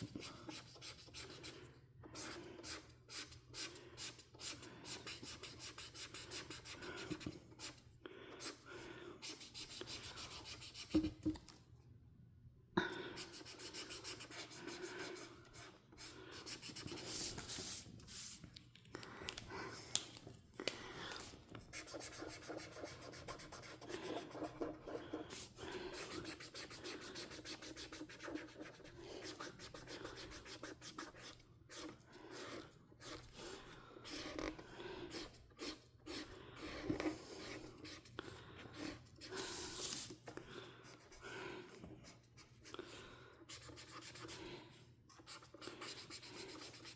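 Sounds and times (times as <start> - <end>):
coloring tool scratching on paper: 13.2 - 18.3, 21.7 - 33.3, 45.2 - 46.9.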